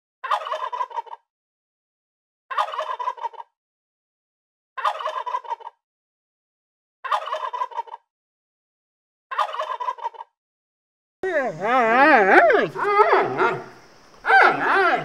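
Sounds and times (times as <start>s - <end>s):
turkey gobbling: 0.2s - 1.2s, 2.5s - 3.5s, 4.8s - 5.8s, 7.0s - 8.1s, 9.3s - 10.3s, 12.3s - 15.0s.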